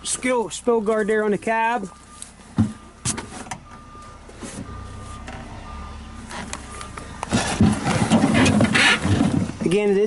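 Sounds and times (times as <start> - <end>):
electronic warning beeps: 0.7 - 7.2
sharp clunks: 2.6 - 3.8.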